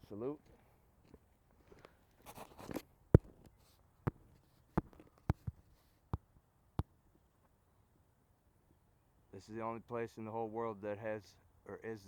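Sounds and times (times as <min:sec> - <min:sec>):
rustle: 0:00.0 - 0:06.4
footsteps on hard ground: 0:00.4 - 0:05.6.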